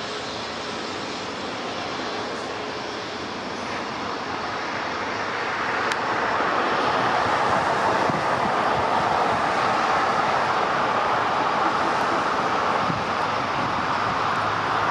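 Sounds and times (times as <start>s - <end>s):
jet engine rushing: 0.0s - 14.9s.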